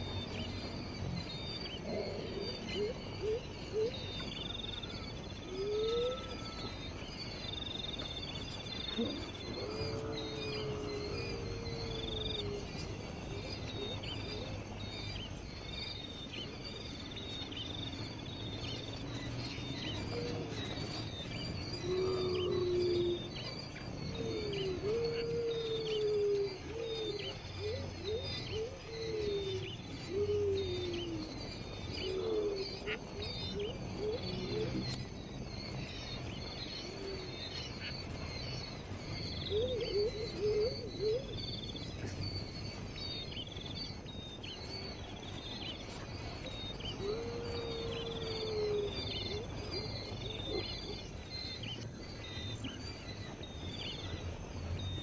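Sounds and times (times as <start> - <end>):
low arching bird calls: 1.5 - 16.1, 18.4 - 55.0.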